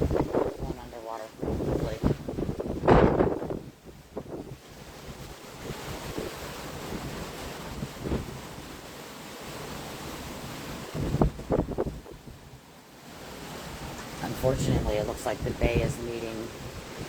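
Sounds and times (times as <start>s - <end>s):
wind blowing across microphone: 0.0s - 17.0s
surf rushing: 4.2s - 17.0s.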